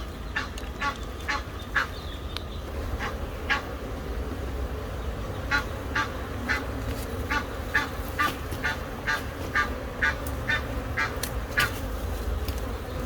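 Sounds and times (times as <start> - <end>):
goose honking: 5.5 - 6.7, 7.3 - 11.7.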